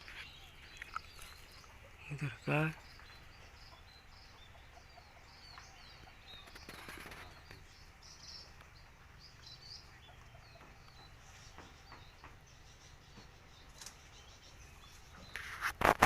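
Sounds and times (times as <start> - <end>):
wild birds chirping: 0.0 - 16.0
brief rustle: 15.2 - 16.0.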